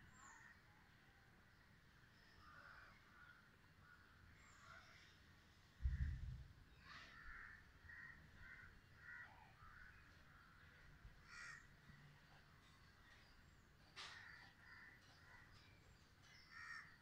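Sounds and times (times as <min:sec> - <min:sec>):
faint bird calls: 0:00.0 - 0:01.0, 0:02.1 - 0:17.0
low rumble on microphone: 0:05.8 - 0:06.5.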